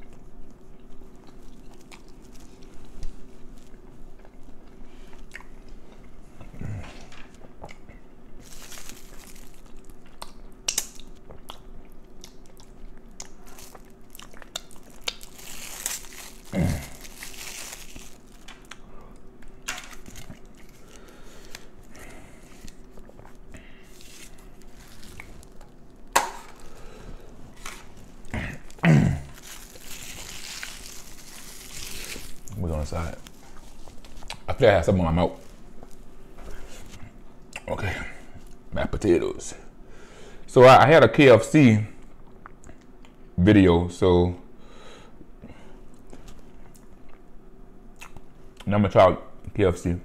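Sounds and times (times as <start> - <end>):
crunchy food chewing: 0.0 - 6.6, 7.3 - 34.5
wet mouth clicks: 48.0 - 48.7.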